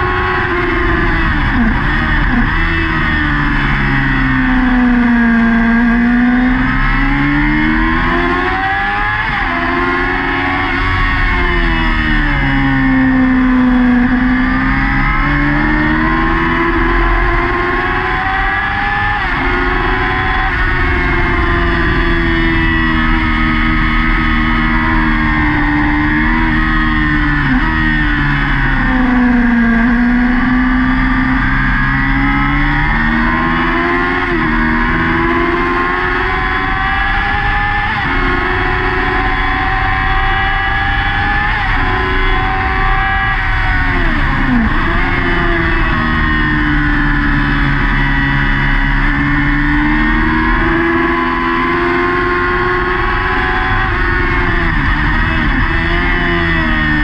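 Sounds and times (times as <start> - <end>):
motorcycle engine at high revs: 0.0 - 57.0.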